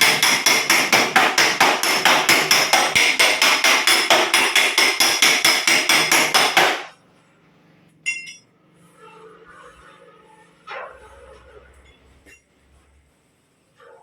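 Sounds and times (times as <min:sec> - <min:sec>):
hammer striking steel panel: 0:00.0 - 0:06.9
ringing metal clink: 0:08.0 - 0:08.5.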